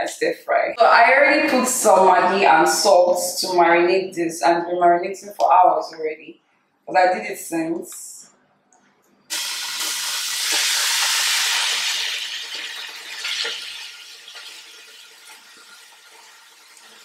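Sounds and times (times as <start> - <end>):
chicken sizzling in oil: 9.3 - 17.0.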